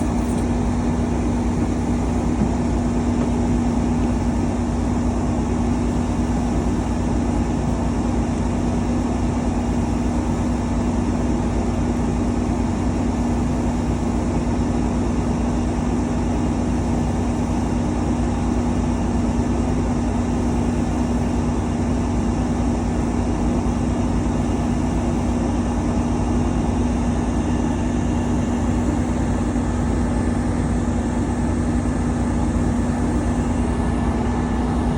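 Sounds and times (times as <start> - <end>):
low steady hum: 0.0 - 15.7.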